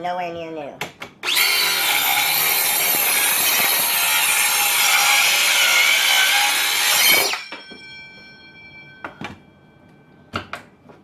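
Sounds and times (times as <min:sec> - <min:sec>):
circular saw cutting wood: 0:01.2 - 0:07.5.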